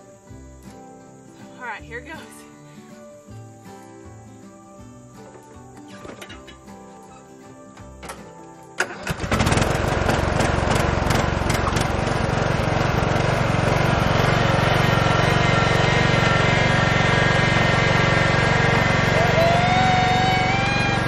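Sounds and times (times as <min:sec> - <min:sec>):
riding lawn mower engine: 0:08.0 - 0:21.0.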